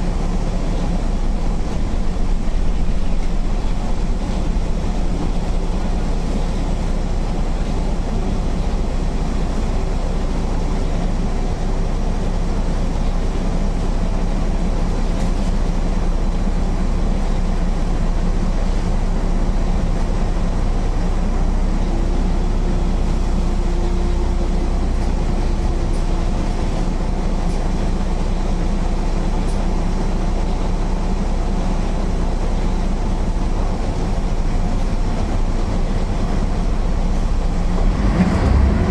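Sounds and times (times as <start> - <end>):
bus diesel engine running: 0.0 - 38.9.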